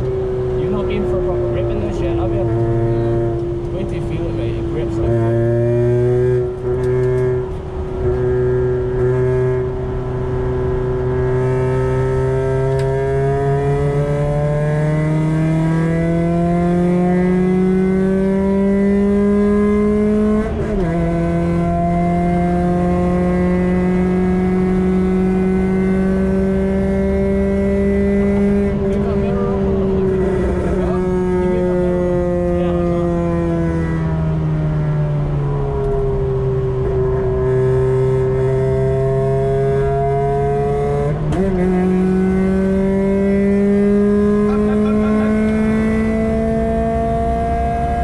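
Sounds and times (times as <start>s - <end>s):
car engine accelerating hard: 0.0s - 48.0s.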